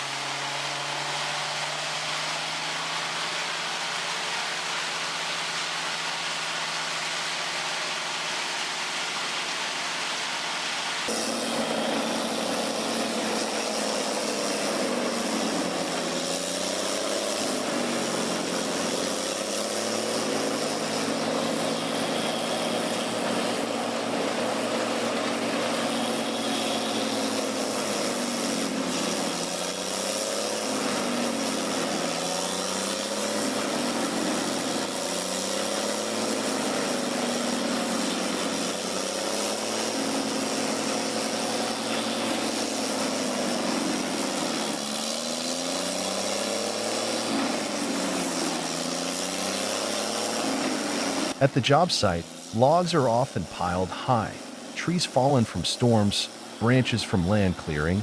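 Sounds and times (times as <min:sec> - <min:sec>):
heavy machine engine running: 0:11.1 - 0:35.3, 0:46.1 - 0:58.0.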